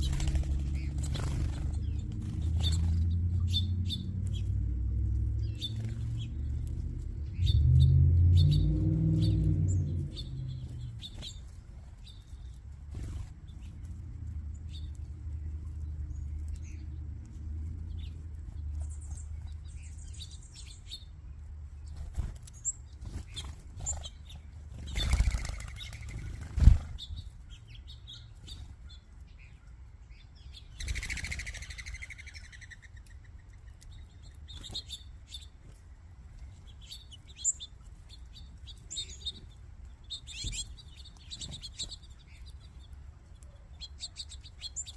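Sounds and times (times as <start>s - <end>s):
flurry of wings whooshing: 0.0s - 3.1s, 21.9s - 27.1s
small birds chirping: 0.0s - 44.9s.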